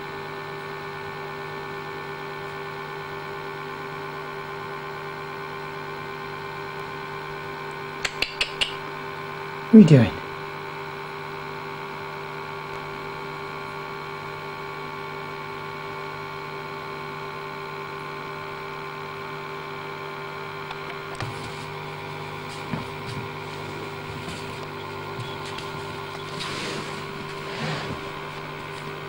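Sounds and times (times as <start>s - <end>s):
steady multi-tone hum: 6.8s - 14.4s, 19.8s - 29.0s.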